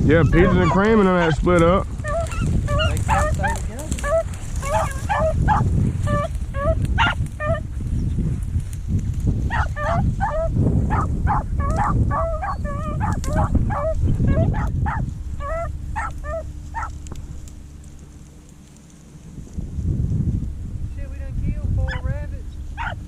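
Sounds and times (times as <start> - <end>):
beagles baying: 0.0 - 8.2, 9.4 - 19.4, 21.8 - 23.0
low rumble: 0.0 - 23.0.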